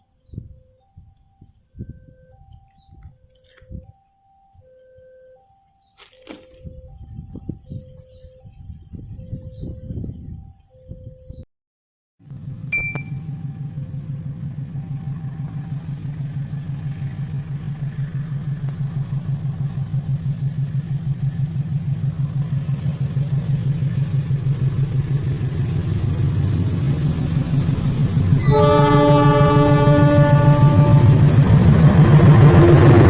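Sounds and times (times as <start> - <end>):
locomotive engine throbbing: 12.2 - 33.0
train horn: 28.4 - 33.0.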